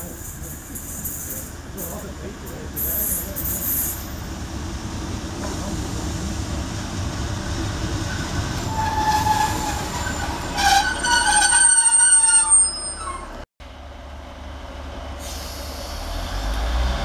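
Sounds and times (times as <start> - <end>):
train low rumble: 0.0 - 17.0
metallic brake squealing: 2.8 - 4.2, 8.1 - 13.4
high thin squeal: 8.7 - 13.4.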